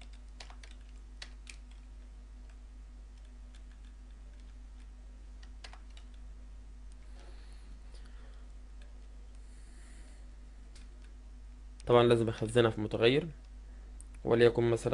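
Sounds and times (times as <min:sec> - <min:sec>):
computer keyboard typing: 0:00.0 - 0:06.2
low electrical hum: 0:00.0 - 0:14.9.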